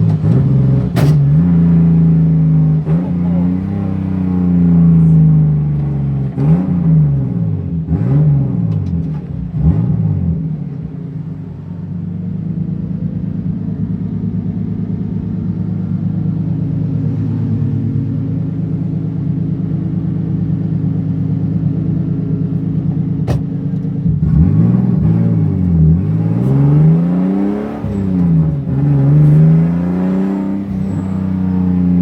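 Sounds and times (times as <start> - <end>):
race car engine revving: 0.0 - 32.0.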